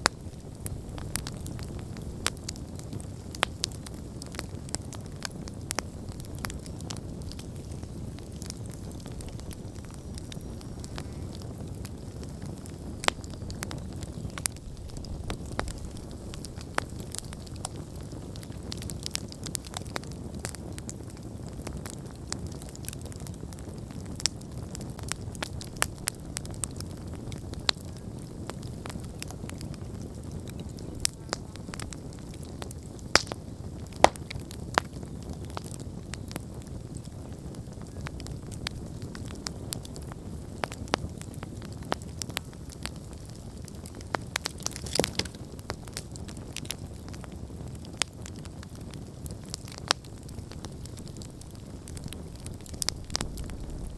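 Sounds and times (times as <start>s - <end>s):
campfire crackling and popping: 0.0s - 53.9s.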